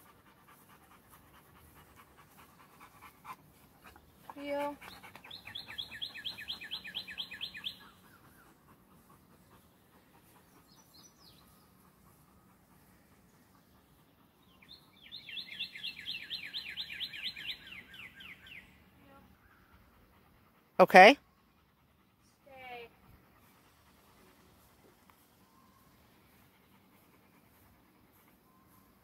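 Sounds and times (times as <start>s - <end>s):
songbird whistling: 5.2s - 8.5s, 14.5s - 18.7s.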